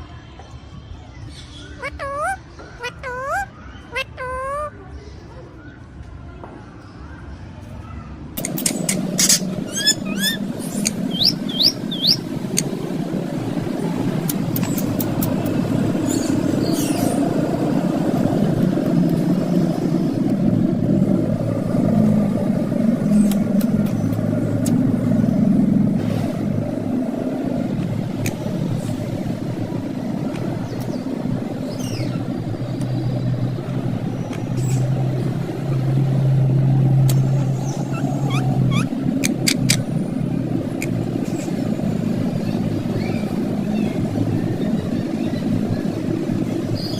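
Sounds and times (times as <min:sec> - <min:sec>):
parakeet calls: 0:01.5 - 0:04.8, 0:08.4 - 0:17.7, 0:31.6 - 0:33.2, 0:37.1 - 0:39.9
low motor rumble: 0:08.4 - 0:46.9.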